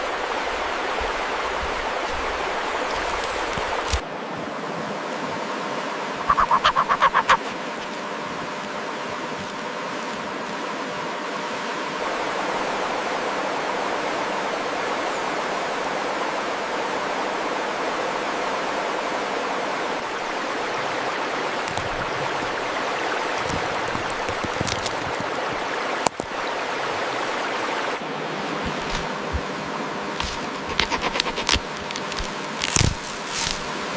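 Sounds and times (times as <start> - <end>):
steady rushing noise: 5.4 - 14.9.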